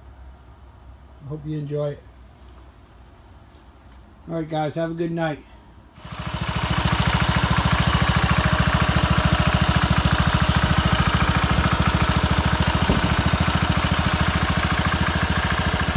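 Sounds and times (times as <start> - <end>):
small engine idling: 6.0 - 15.9.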